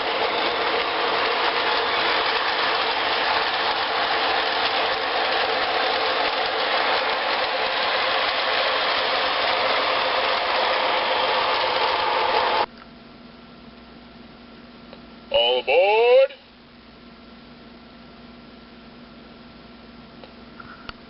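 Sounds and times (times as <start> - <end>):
model train whirring and clattering: 0.0 - 12.7
faint hum: 12.6 - 21.0.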